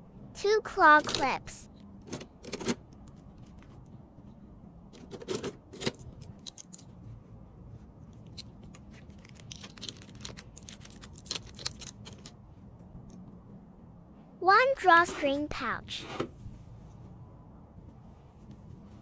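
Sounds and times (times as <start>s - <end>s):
packaging crinkling: 9.0s - 12.2s.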